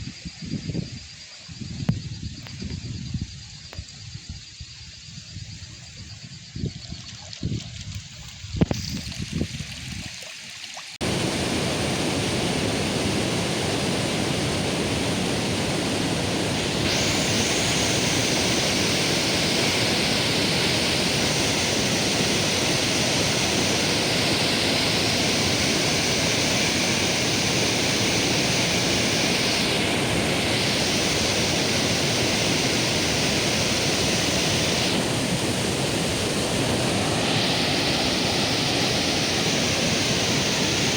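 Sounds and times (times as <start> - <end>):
steady high hiss: 11.0 - 40.9
waterfall roaring: 11.0 - 40.9.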